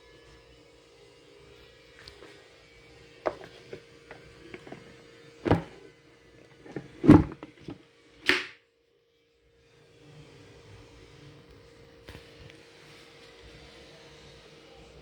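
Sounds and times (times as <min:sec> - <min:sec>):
heavy thud: 0:03.3 - 0:07.8
rustling knock: 0:03.3 - 0:07.8
knocks and clicks of handling: 0:03.3 - 0:08.5.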